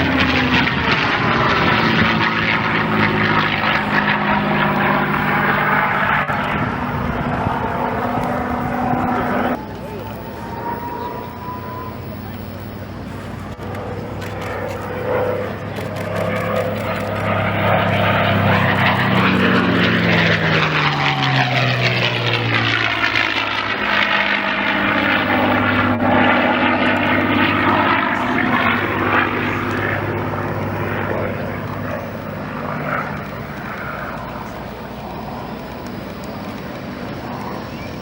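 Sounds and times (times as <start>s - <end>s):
propeller plane engine fly-by: 0.0s - 38.0s.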